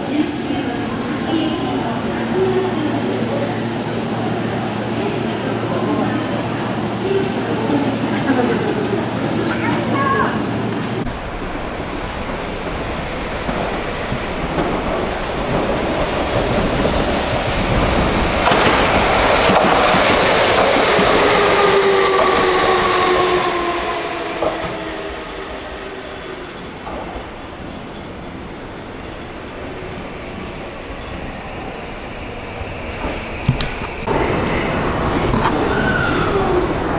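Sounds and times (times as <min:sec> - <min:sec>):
electric train passing: 0:00.0 - 0:36.9
wheels clattering on rails: 0:01.4 - 0:36.4
train whine falling in pitch: 0:19.5 - 0:26.4.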